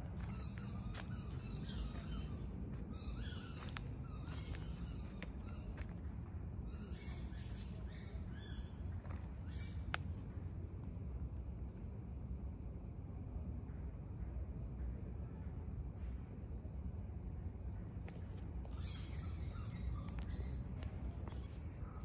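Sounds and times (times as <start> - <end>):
birds chirping: 0.0 - 5.8, 18.6 - 22.0
steady low rumble: 0.0 - 22.0.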